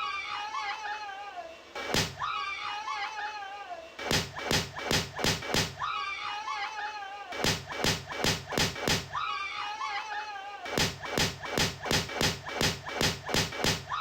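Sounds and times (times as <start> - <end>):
high wavering screams: 0.0 - 1.4, 2.2 - 3.7, 5.8 - 7.3, 9.1 - 10.5
balloons bursting with pops: 1.9 - 2.2, 4.1 - 5.8, 7.4 - 9.1, 10.7 - 13.9.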